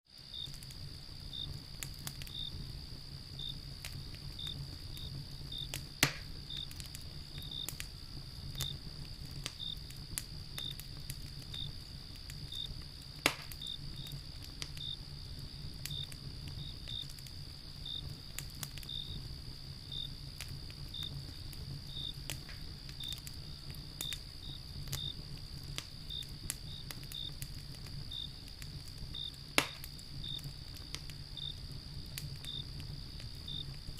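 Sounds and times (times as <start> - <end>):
crickets chirping: 0.1 - 33.9
wood fire crackling and popping: 0.1 - 33.9.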